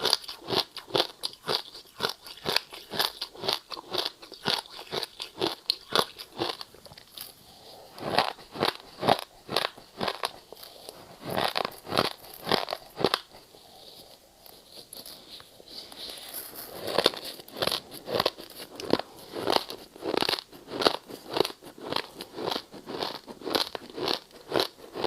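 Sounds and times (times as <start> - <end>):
ice being chewed: 0.0 - 25.0.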